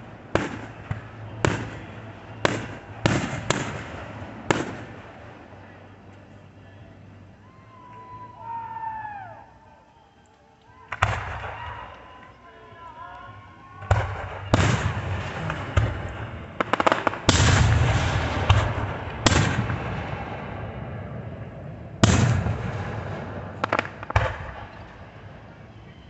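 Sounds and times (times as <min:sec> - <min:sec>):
crackling firework cracks: 0:00.0 - 0:05.3, 0:10.9 - 0:12.1, 0:13.8 - 0:20.5, 0:22.0 - 0:25.6
fireworks bangs: 0:00.0 - 0:06.8, 0:10.9 - 0:13.0, 0:13.7 - 0:26.0.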